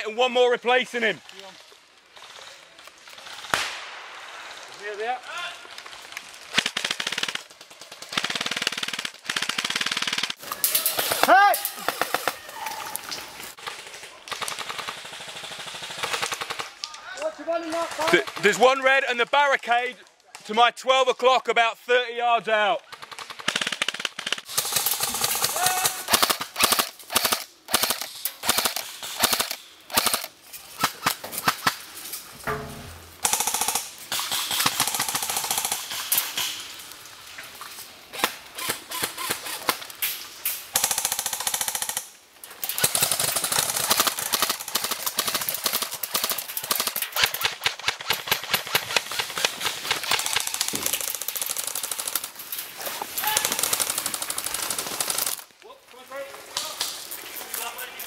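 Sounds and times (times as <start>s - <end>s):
airsoft guns firing bursts: 6.5s - 10.4s, 14.4s - 16.7s, 22.9s - 31.8s, 33.2s - 36.5s, 40.7s - 52.4s, 53.2s - 55.4s.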